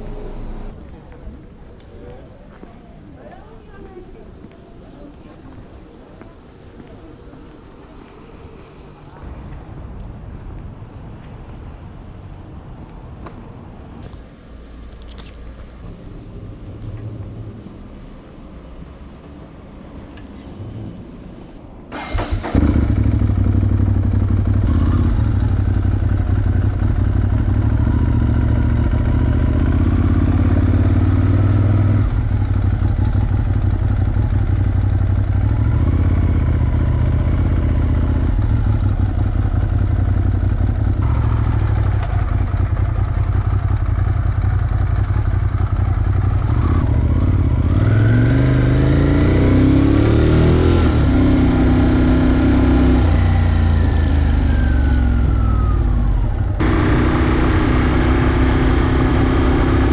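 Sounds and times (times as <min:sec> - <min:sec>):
motorcycle engine accelerating: 0:22.0 - 0:59.9.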